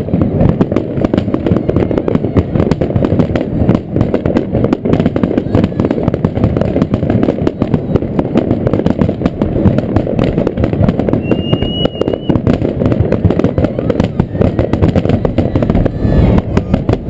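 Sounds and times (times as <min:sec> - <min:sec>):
fireworks bangs and crackles: 0:00.0 - 0:17.0
firework whistle: 0:05.1 - 0:06.3, 0:11.0 - 0:17.0.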